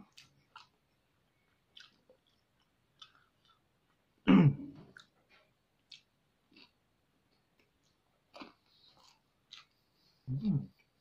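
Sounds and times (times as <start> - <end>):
quiet chewing with soft crunches: 0.0 - 11.0
loud throat sound: 4.2 - 4.7.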